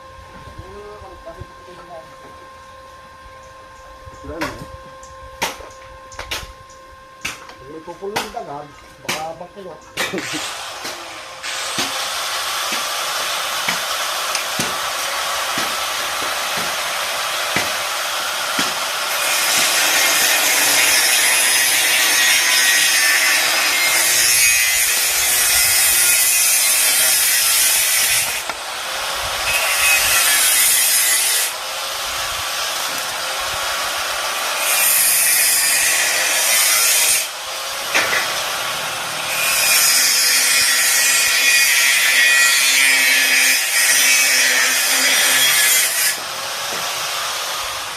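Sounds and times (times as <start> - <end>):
harsh rasping hiss on metal: 19.1 - 31.6, 34.6 - 37.4, 39.2 - 46.2.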